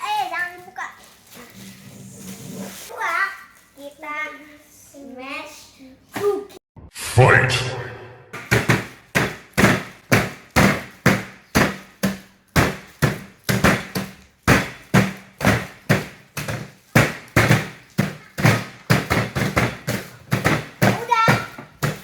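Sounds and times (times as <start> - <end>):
pestle pounding biscuits: 8.4 - 22.0.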